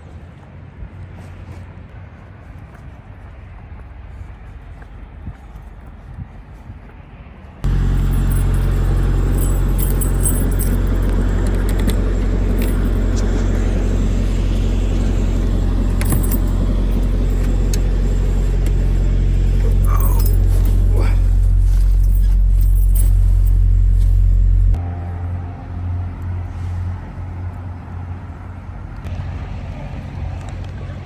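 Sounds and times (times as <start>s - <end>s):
motor vehicle drone: 7.6s - 31.0s
light rattles and clicks: 7.7s - 24.4s.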